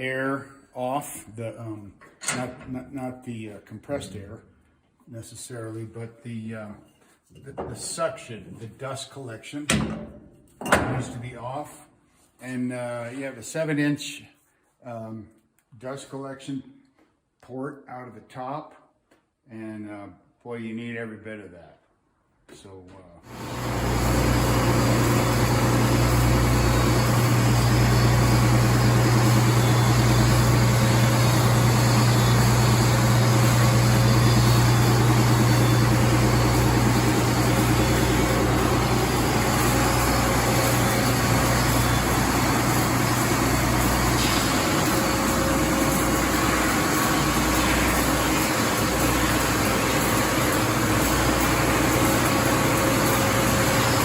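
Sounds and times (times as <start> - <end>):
belt sander machine hum: 23.3 - 54.0.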